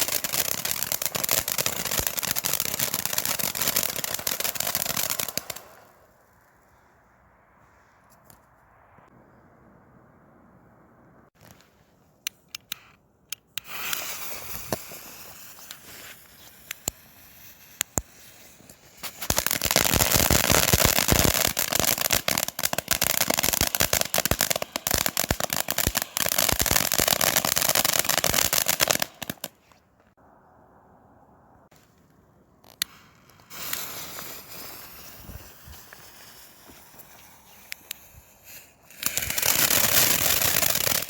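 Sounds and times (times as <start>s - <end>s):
firework fountain crackling: 0.0s - 6.5s, 13.6s - 29.6s, 32.6s - 41.0s.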